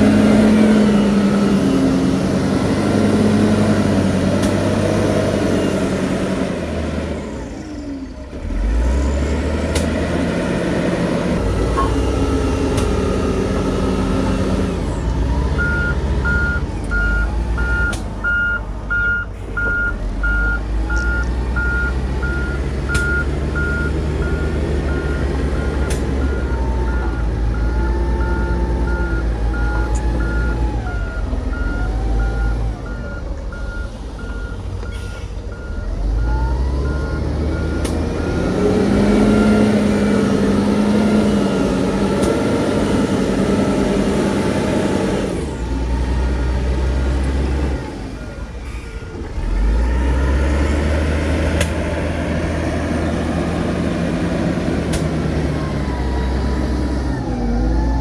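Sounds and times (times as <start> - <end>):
diesel machinery running: 0.0 - 58.0
reversing alarm beeping: 11.4 - 45.1.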